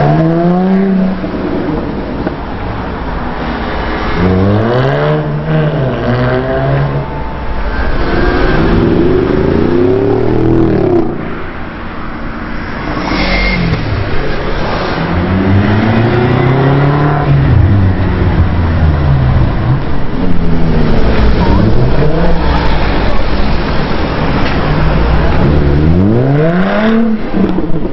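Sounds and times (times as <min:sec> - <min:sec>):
car engine revving: 0:12.6 - 0:27.9.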